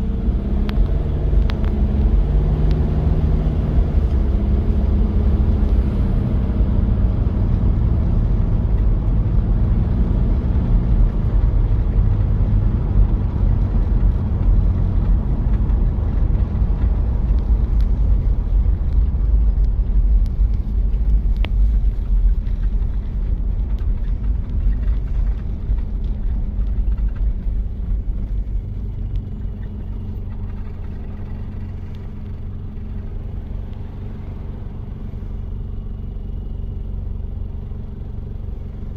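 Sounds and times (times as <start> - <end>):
diesel engine rumbling: 0.0 - 38.9
road noise: 0.0 - 38.9.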